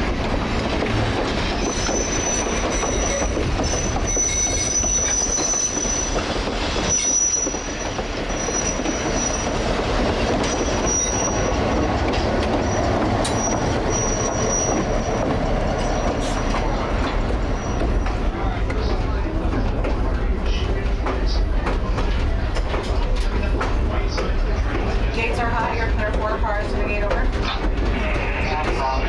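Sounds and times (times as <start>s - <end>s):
railroad cars rumbling: 0.0s - 29.0s
steel wheel squeal: 1.4s - 16.9s, 17.5s - 18.3s.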